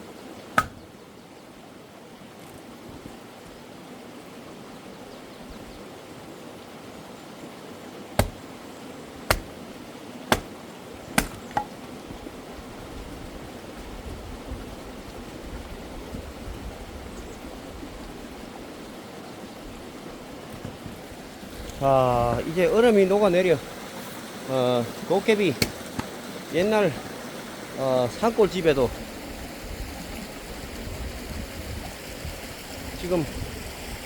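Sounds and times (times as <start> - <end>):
stream rushing: 0.0 - 34.0
axe splitting firewood: 0.6 - 0.9, 8.2 - 9.7, 10.3 - 12.3, 25.6 - 26.2.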